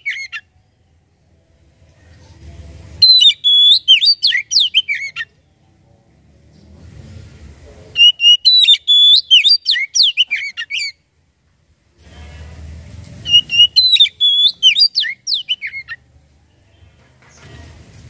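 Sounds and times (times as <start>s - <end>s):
bird singing whistled notes: 0.0s - 0.5s, 3.0s - 5.4s, 8.0s - 11.0s, 13.2s - 16.0s.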